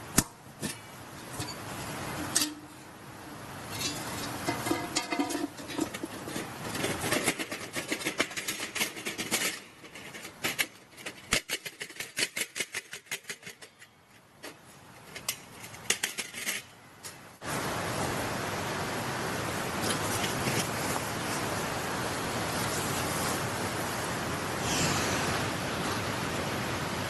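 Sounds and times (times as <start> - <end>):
camping gear clicking and rustling: 0.6 - 17.2, 19.7 - 21.6
steady rushing noise: 15.2 - 27.0.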